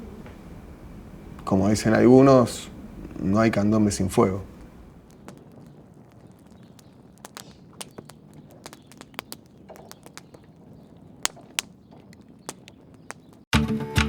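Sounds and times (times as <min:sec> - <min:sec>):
low rush of fire: 0:00.0 - 0:13.5
fire crackling and popping: 0:00.9 - 0:13.5.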